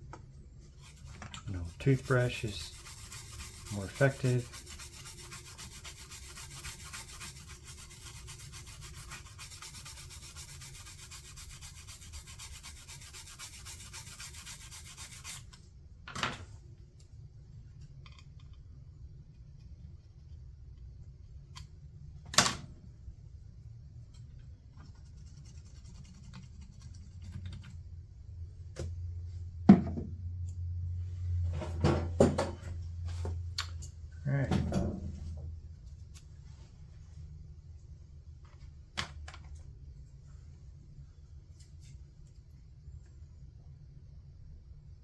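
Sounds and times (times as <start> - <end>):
toothbrush scrubbing circuit board: 0.8 - 15.4, 24.8 - 27.5.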